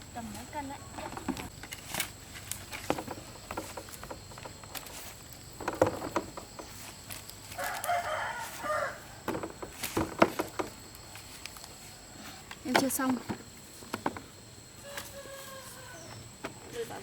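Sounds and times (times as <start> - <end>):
sharp knocks and thumps: 0.9 - 2.0, 2.7 - 7.0, 9.2 - 10.9, 12.6 - 14.4
rooster crowing: 7.5 - 9.3, 14.8 - 16.3.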